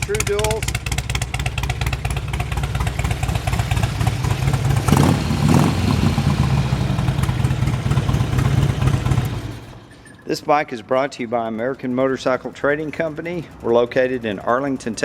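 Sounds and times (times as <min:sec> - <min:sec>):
motorcycle engine idling: 0:00.0 - 0:10.0, 0:11.4 - 0:15.0
motorcycle throttle blips: 0:00.0 - 0:10.1.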